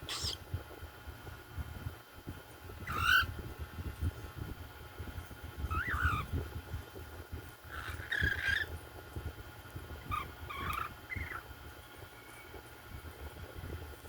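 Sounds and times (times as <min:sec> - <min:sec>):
cockatiels squawking: 0:00.0 - 0:00.4, 0:02.8 - 0:03.3, 0:05.7 - 0:06.3, 0:07.6 - 0:08.7, 0:10.1 - 0:11.5.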